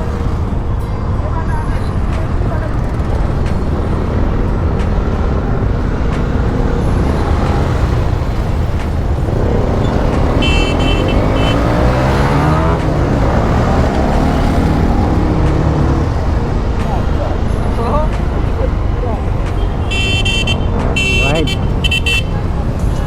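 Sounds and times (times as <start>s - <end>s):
motorcycle engine: 0.0s - 23.0s
wind and road noise: 0.0s - 23.0s
horn short beeps: 9.8s - 12.2s, 19.6s - 22.4s.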